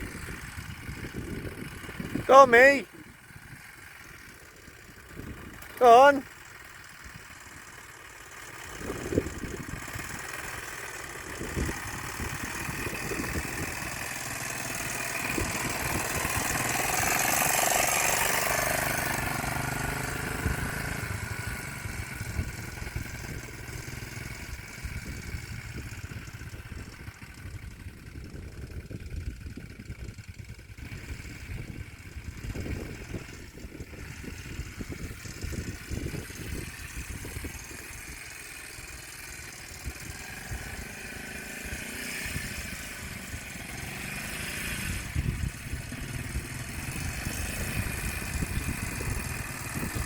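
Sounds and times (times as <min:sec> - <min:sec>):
quad bike engine: 0:00.0 - 0:50.0.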